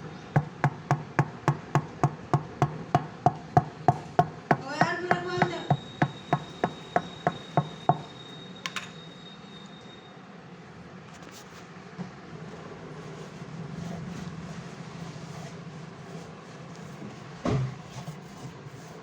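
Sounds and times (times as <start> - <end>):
hammer blows: 0.4 - 9.0.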